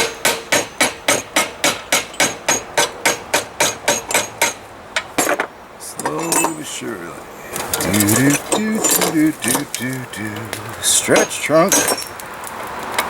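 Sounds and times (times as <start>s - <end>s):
hammer striking metal on anvil: 0.0s - 4.6s, 5.2s - 6.6s.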